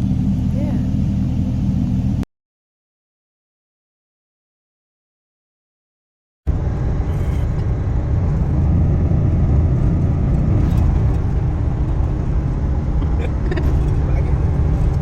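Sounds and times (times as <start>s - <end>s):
vehicle engine rumbling: 0.0s - 2.2s, 6.5s - 15.0s.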